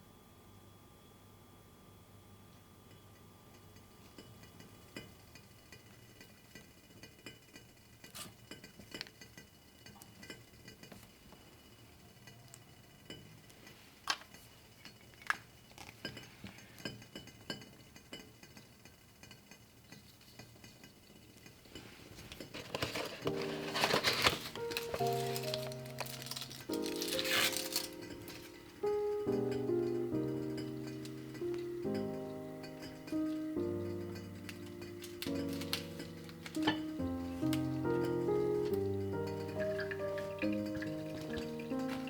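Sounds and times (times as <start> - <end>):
dishes and cutlery clinking: 12.2 - 42.0
dishes clattering: 16.0 - 42.0.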